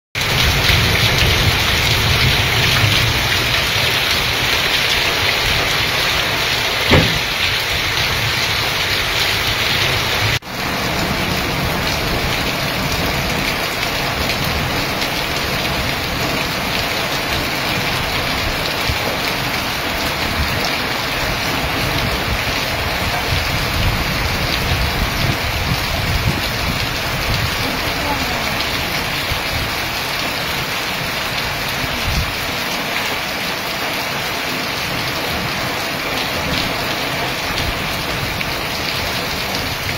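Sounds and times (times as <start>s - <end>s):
heavy rain splashing into water: 0.2s - 39.9s
sharp knock: 6.9s - 7.5s.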